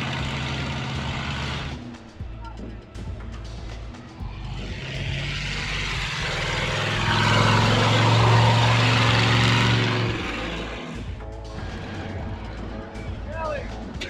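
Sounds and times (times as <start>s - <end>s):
loud engine passing by: 0.0s - 1.9s, 4.2s - 13.3s.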